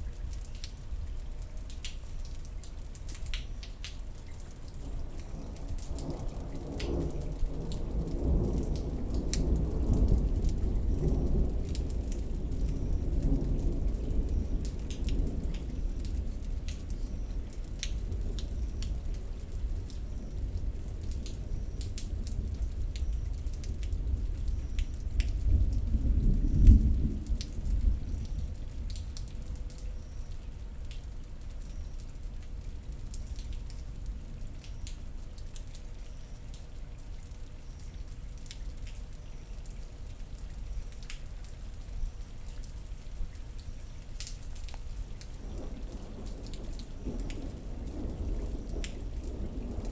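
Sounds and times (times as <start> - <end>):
raindrops ticking: 0.0 - 49.9
steady rain: 0.0 - 49.9
rolling thunder: 4.8 - 29.3, 45.3 - 49.9.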